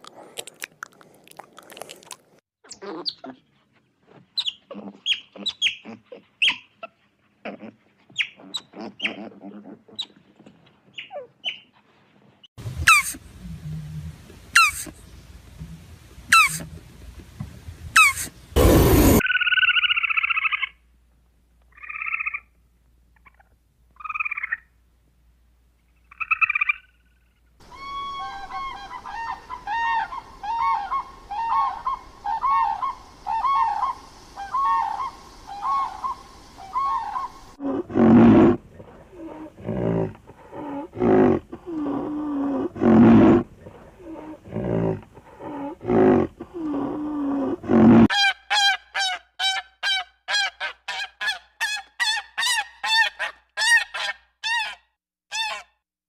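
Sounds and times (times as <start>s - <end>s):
squirrel calls: 16.3s - 16.6s
crane calling: 27.6s - 37.6s.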